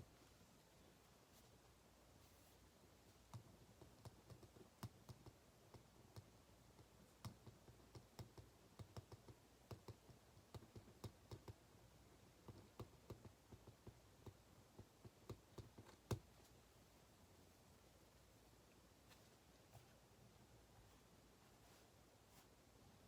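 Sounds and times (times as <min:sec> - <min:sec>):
faint irregular clicks and taps: 0:03.0 - 0:16.6.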